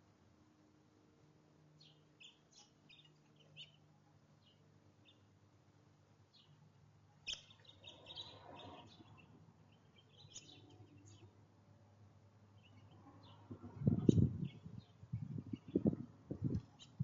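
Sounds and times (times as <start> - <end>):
small birds chirping: 1.8 - 5.4, 6.2 - 11.4, 12.5 - 17.0.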